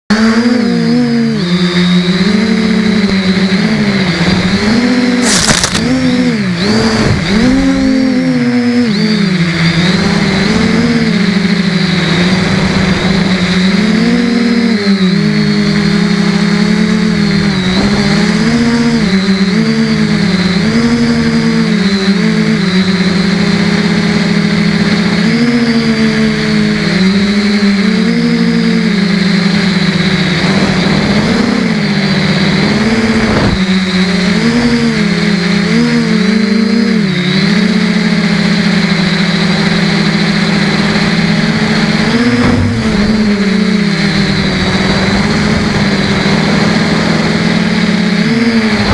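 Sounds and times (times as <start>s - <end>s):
drone motors whining: 0.1s - 48.9s.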